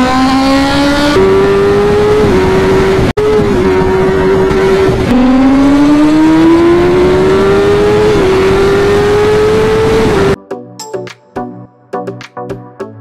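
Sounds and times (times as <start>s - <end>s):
motorcycle engine at high revs: 0.0s - 10.4s.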